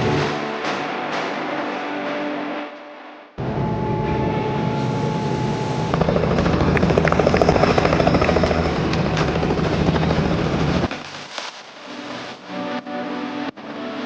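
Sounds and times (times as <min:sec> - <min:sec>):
helicopter rotor and engine: 0:03.9 - 0:11.0.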